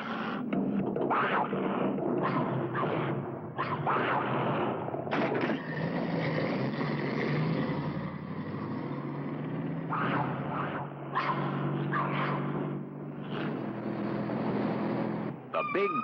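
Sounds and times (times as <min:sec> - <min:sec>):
car engine running: 0:00.0 - 0:15.5.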